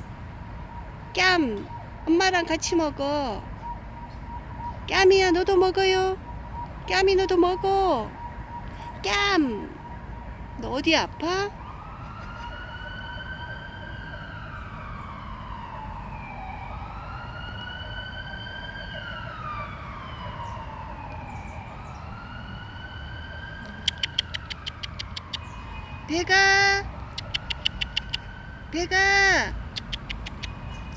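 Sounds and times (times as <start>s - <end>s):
emergency siren wailing: 0.2s - 29.7s
sharp clicks: 23.6s - 25.5s, 27.1s - 28.3s, 29.7s - 30.6s.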